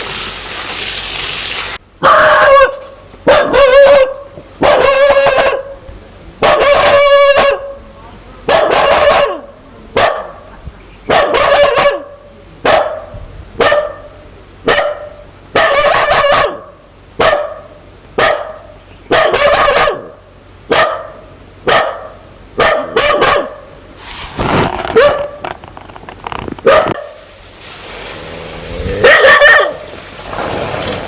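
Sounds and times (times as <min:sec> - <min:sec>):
dog barking aggressively: 0:02.0 - 0:05.8, 0:06.4 - 0:07.8, 0:08.5 - 0:10.5, 0:11.1 - 0:23.7, 0:24.8 - 0:25.5, 0:26.6 - 0:27.2, 0:28.9 - 0:30.0.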